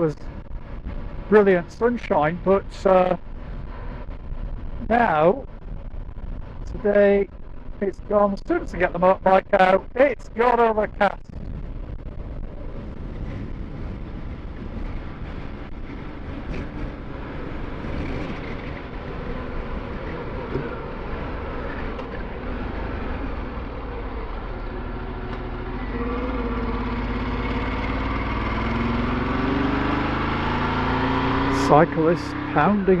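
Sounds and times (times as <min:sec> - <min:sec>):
wind and road noise: 0:00.0 - 0:33.0
motorcycle engine running: 0:11.0 - 0:33.0.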